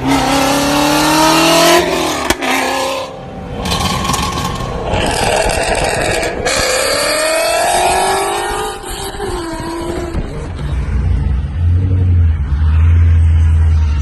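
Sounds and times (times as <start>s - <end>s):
car exhaust deep drone: 3.0s - 14.0s.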